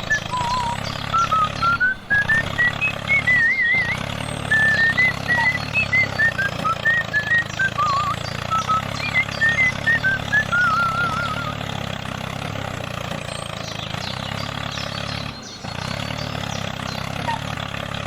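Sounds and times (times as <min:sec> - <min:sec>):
quick high chirps: 0:00.0 - 0:11.6
warbling whistle: 0:00.0 - 0:11.6
engine idling: 0:00.0 - 0:18.0.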